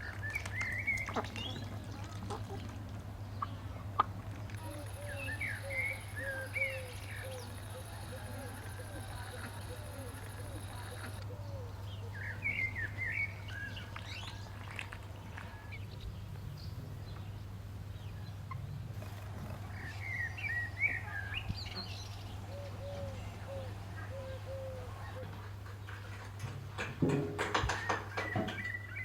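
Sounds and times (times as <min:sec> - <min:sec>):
steady low hum: 0:04.5 - 0:13.6
short low bird calls: 0:04.6 - 0:13.7
songbird warbled chirping: 0:04.6 - 0:14.4.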